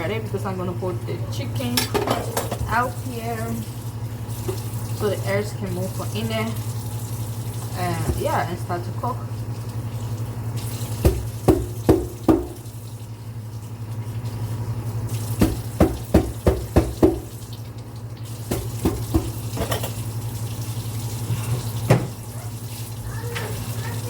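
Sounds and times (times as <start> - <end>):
water running into sink: 0.0 - 24.0
utensil clinking against sink: 1.6 - 2.9, 18.5 - 20.0.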